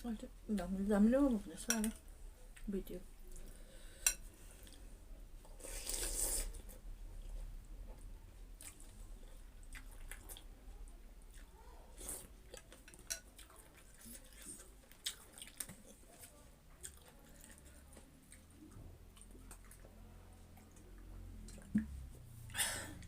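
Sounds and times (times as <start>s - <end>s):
soft chewing: 0.5s - 23.0s
person slurping soup: 5.6s - 6.7s.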